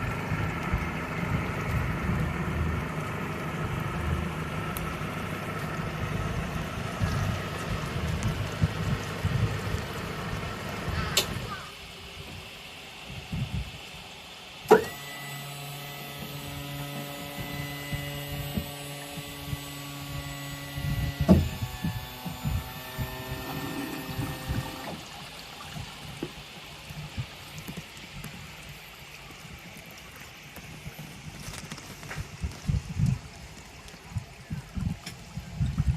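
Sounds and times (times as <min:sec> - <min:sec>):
electric trim motor humming: 0:14.6 - 0:25.1.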